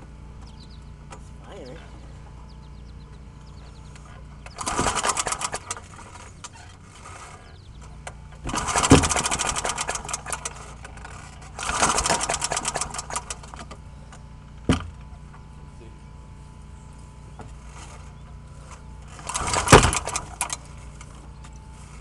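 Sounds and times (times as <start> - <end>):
lawnmower engine pull-start: 3.9 - 14.2, 17.5 - 22.0.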